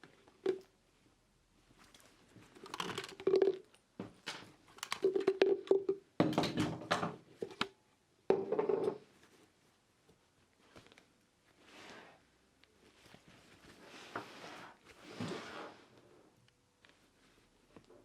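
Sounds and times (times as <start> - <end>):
small objects clicking and tapping: 2.6 - 7.8.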